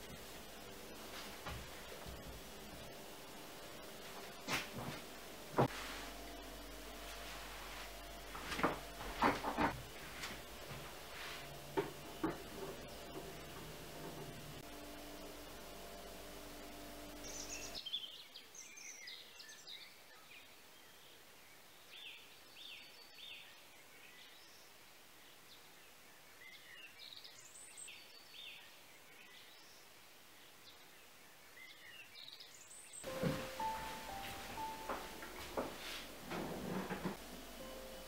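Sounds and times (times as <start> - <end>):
steady low hum: 0.0 - 18.8, 33.0 - 38.0
songbirds chirping: 0.0 - 36.0.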